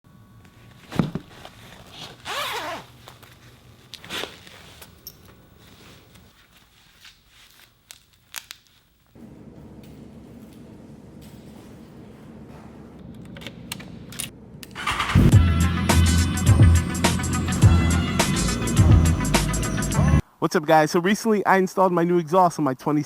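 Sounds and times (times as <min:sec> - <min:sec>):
steady low hum: 0:09.1 - 0:14.8.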